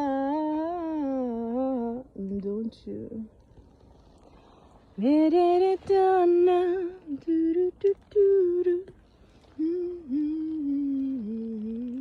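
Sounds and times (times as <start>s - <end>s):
woman humming a tune: 9.6s - 12.0s.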